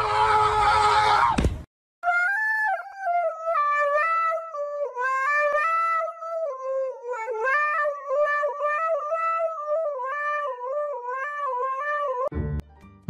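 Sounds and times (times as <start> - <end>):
dog howling into a microphone: 2.1 - 12.3.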